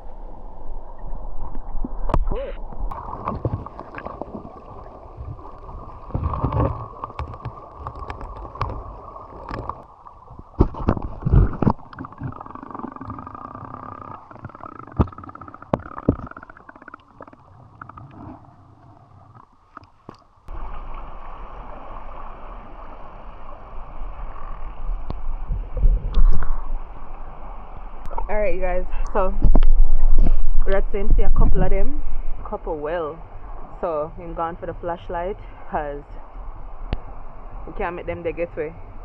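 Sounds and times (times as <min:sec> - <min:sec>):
rushing gurgling river water: 0:02.9 - 0:18.4
knocks and clicks: 0:14.0 - 0:17.4.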